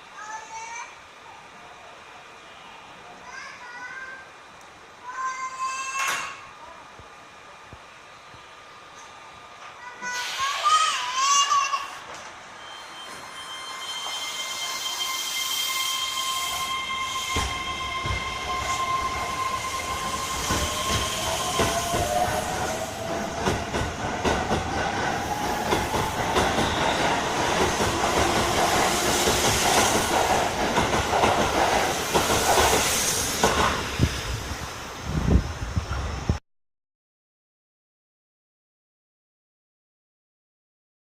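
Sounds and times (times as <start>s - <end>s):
train wheels clicking on rail joints: 16.6s - 34.1s.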